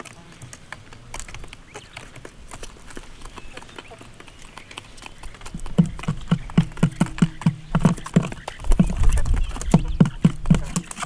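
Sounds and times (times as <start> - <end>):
hollow knocks: 5.4 - 11.0.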